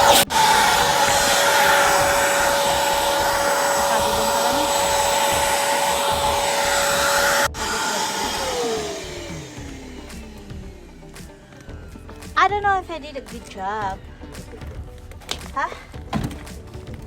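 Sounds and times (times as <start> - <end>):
vacuum cleaner whining motor: 0.0 - 12.4.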